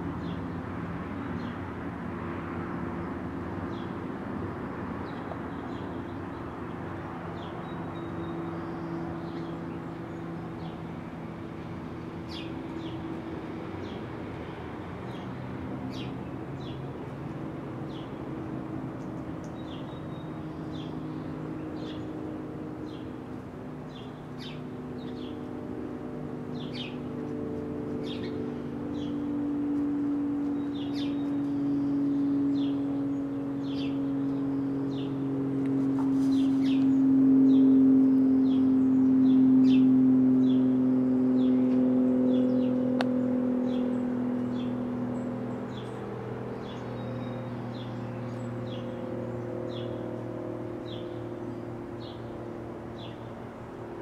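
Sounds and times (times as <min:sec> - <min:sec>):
low engine hum: 0:00.0 - 0:54.0
small birds chirping: 0:02.6 - 0:54.0.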